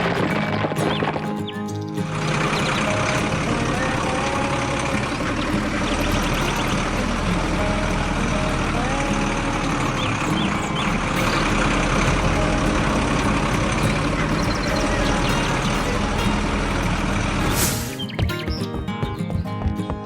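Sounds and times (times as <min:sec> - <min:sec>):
high chirps: 0:00.3 - 0:19.2
tractor engine running: 0:02.2 - 0:17.5.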